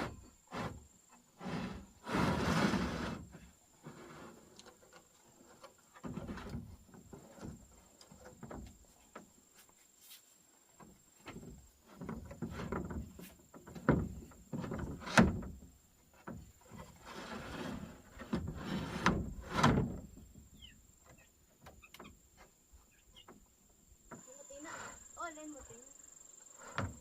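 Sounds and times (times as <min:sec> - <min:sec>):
wood scraping and sliding: 0:00.0 - 0:25.8, 0:26.4 - 0:27.0
wooden knocks and bumps: 0:04.5 - 0:09.4, 0:10.8 - 0:17.1.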